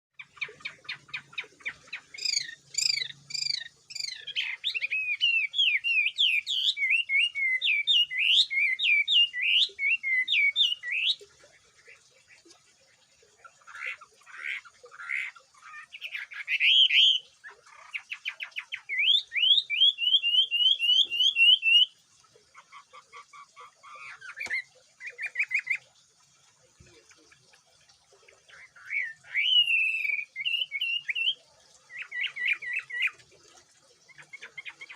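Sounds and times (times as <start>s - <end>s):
songbird singing varied song: 0.2s - 11.2s, 15.9s - 21.9s, 28.5s - 33.2s.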